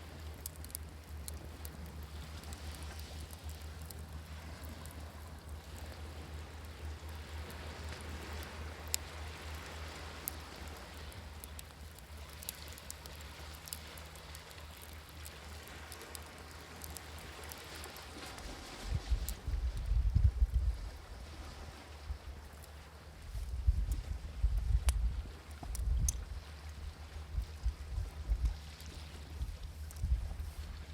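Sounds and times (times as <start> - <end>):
wood fire crackling: 0.0 - 20.8, 22.0 - 30.9
wind buffeting microphone: 18.4 - 22.2, 23.3 - 28.6, 29.4 - 30.9.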